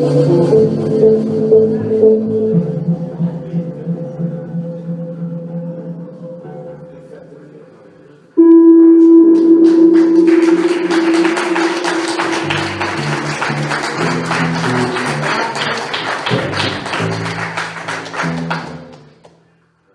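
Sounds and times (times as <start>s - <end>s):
pulsing low tone: 0.3s - 6.2s, 8.4s - 14.2s
crackling noise wall: 8.4s - 13.9s
loud held electronic tone: 8.4s - 13.9s.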